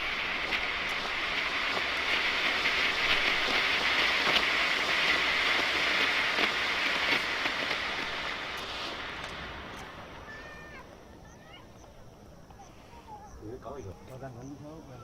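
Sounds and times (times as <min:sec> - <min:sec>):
smoke tube hissing: 0:00.0 - 0:11.8
faint crackles: 0:00.0 - 0:15.0.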